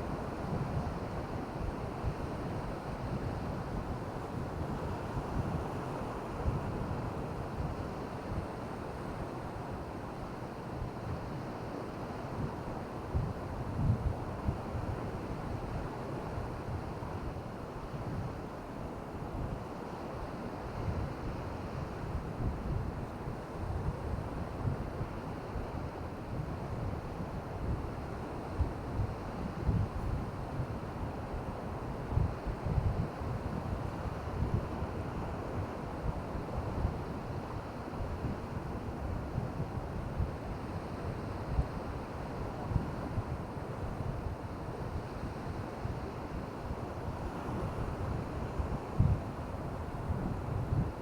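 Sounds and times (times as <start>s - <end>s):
wind buffeting microphone: 32.1s - 37.4s, 47.6s - 51.0s.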